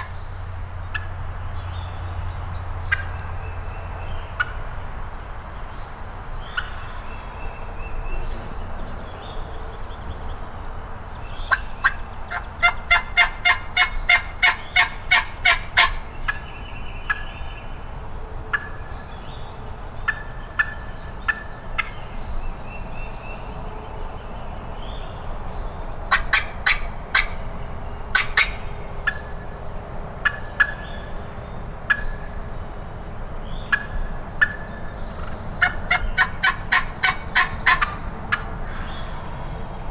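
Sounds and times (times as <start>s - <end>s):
wild turkey yelping: 11.5s - 16.4s, 28.1s - 29.2s, 35.2s - 38.8s.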